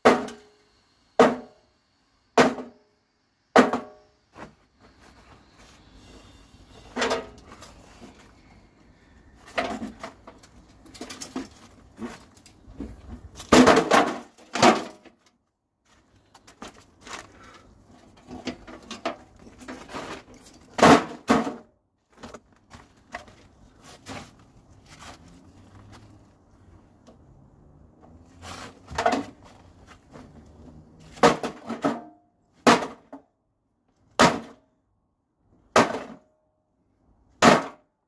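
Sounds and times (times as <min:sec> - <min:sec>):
knocks and clatter of metal parts: 0:06.7 - 0:08.4, 0:09.4 - 0:26.3, 0:28.5 - 0:33.2.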